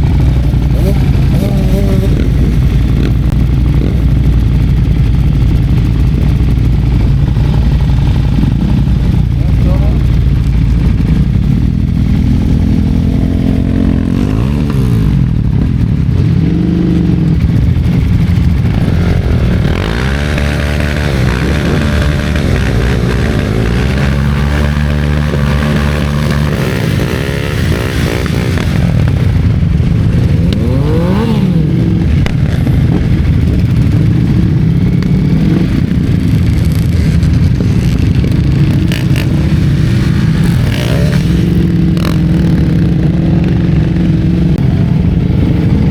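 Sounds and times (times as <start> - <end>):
motorcycle engines revving: 0.0 - 45.9
wind rumble on microphone: 0.0 - 45.9.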